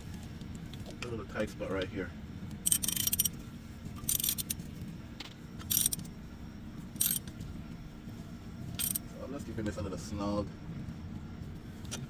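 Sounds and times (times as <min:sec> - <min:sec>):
ratchet wrench clicking: 0:02.7 - 0:03.3, 0:04.0 - 0:04.6, 0:05.6 - 0:06.1, 0:07.0 - 0:07.2, 0:08.8 - 0:09.0.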